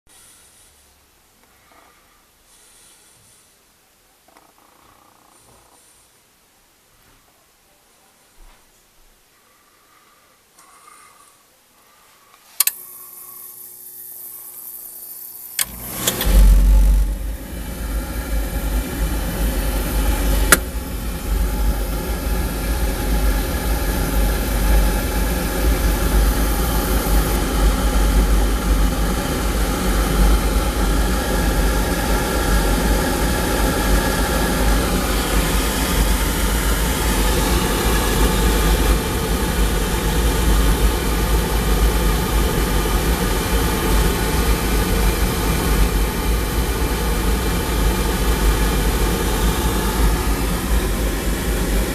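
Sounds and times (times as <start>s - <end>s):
sharp click: 12.6s - 12.8s, 15.5s - 17.1s, 20.5s - 20.7s
oil burner motor hum: 12.6s - 51.9s
flame rushing: 15.6s - 42.0s.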